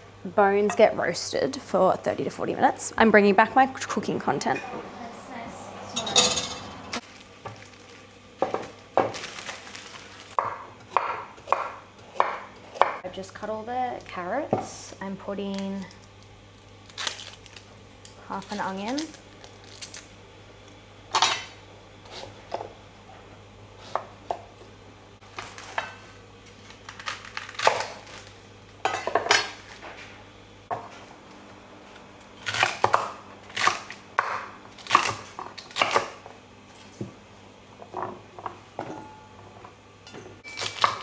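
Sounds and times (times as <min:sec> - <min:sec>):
pot clinks: 0:06.0 - 0:06.8
knife chopping on board: 0:10.4 - 0:13.0.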